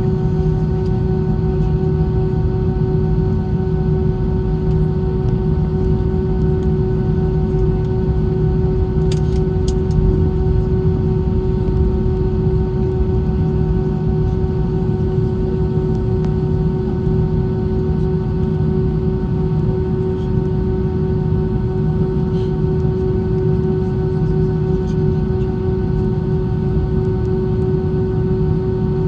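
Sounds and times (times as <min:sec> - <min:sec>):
jet engine drone in cabin: 0:00.0 - 0:29.0.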